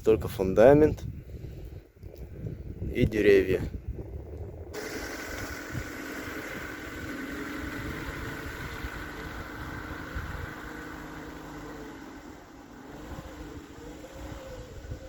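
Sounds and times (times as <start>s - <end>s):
car engine running: 4.7s - 15.0s.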